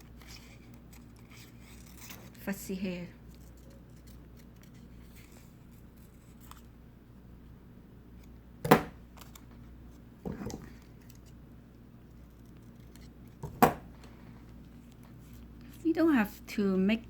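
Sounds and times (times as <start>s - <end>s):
scissors snipping paper: 3.3s - 5.4s.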